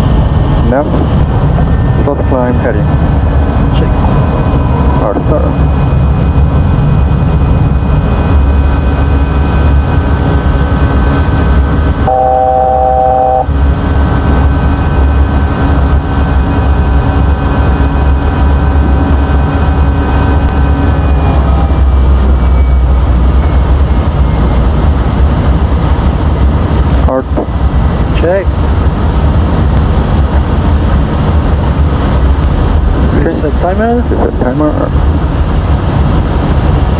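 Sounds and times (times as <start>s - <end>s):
airflow and jet engines rumbling: 0.0s - 36.9s
steady engine tones: 0.0s - 36.9s
short tone: 12.0s - 13.5s, 20.1s - 21.8s, 22.4s - 23.5s.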